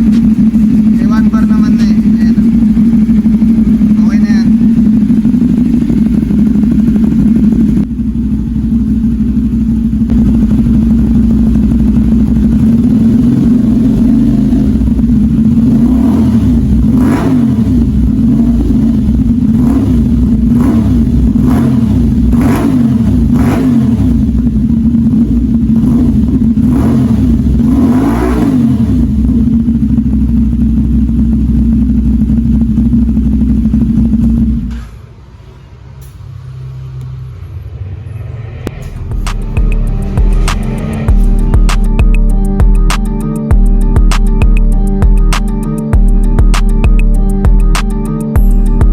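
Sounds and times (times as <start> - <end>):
motorcycle throttle blips: 0.0 - 34.9
motorcycle engine idling: 0.0 - 35.2, 38.7 - 48.9.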